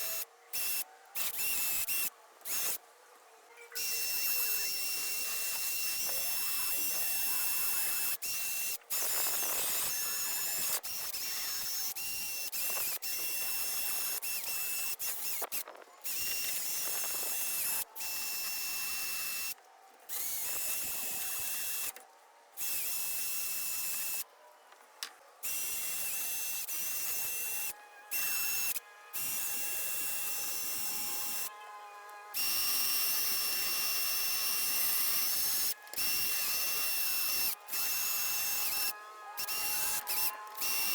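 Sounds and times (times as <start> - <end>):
small power tool whining: 0.0 - 2.8, 3.7 - 40.9.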